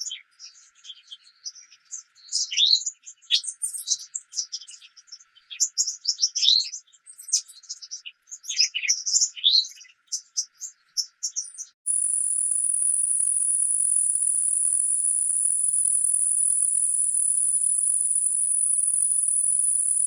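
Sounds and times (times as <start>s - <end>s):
songbird chirping: 11.3s - 20.0s
high-pitched buzz: 11.9s - 20.0s.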